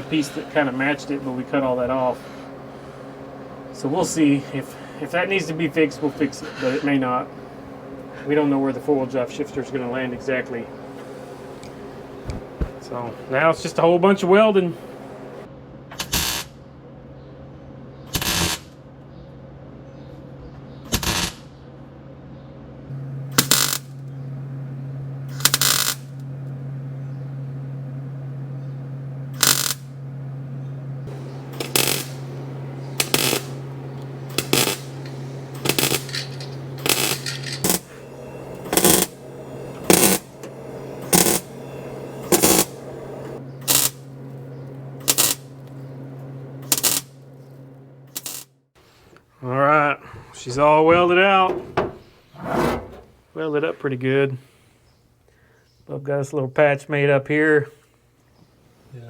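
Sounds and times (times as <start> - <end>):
steady low hum: 0.0 - 15.8, 22.8 - 55.6
crackling welding bursts: 0.0 - 16.5, 22.9 - 48.6.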